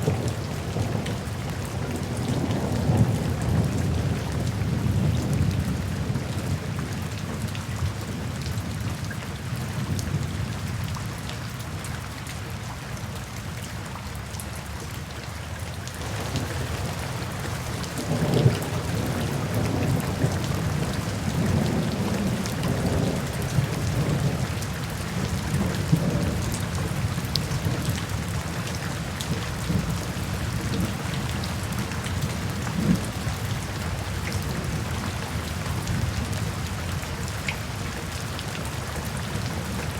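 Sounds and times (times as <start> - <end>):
steady rain falling: 0.0 - 39.9
low rolling thunder: 16.0 - 35.0.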